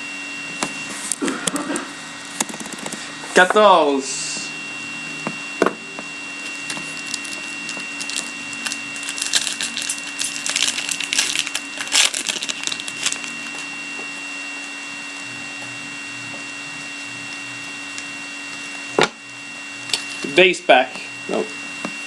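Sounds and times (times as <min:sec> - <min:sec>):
foil card pack crinkling: 0:06.4 - 0:13.7.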